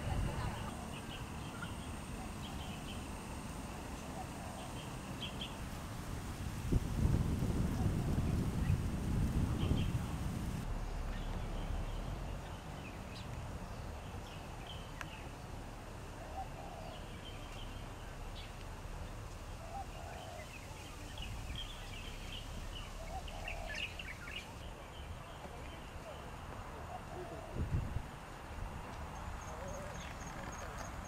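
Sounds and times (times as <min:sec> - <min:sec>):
small birds chirping: 0:00.0 - 0:05.8, 0:07.6 - 0:27.8, 0:28.8 - 0:31.0
wind buffeting microphone: 0:00.0 - 0:10.8, 0:27.2 - 0:29.4.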